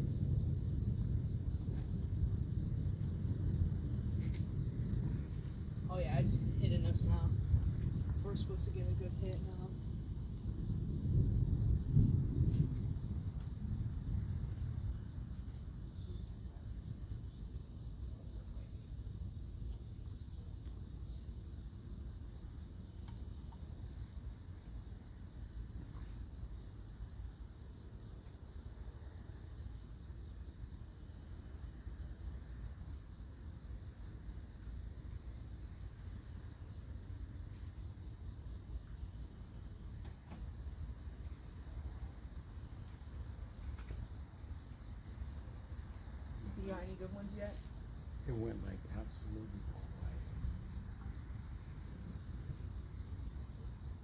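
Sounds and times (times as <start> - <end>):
thunder rumbling: 0.0 - 19.7, 45.2 - 54.0
crickets chirping: 0.0 - 54.0.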